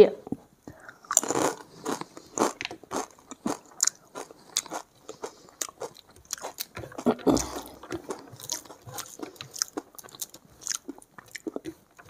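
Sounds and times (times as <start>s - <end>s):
chewing crisp crunches: 0.8s - 12.0s.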